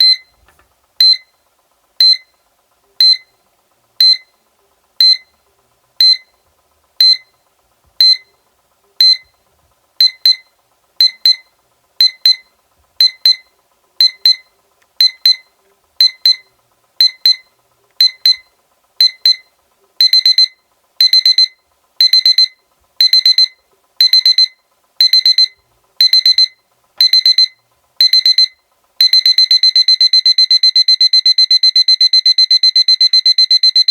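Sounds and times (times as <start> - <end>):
electronic alarm clock beeping: 0.0 - 0.3, 1.0 - 1.3, 2.0 - 2.3, 3.0 - 3.3, 4.0 - 4.3, 5.0 - 5.3, 6.0 - 6.3, 7.0 - 7.3, 8.0 - 8.3, 9.0 - 9.3, 10.0 - 33.9.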